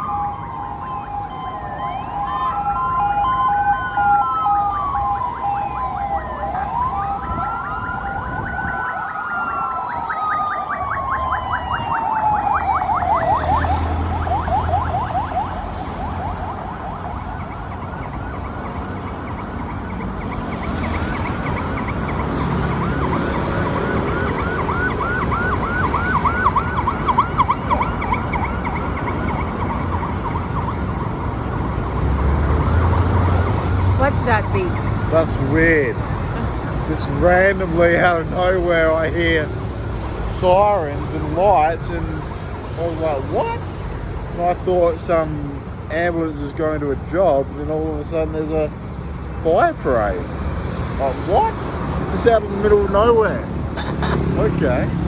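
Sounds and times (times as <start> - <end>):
siren yelp: 0.0 - 32.0
wailing sirens: 0.0 - 43.8.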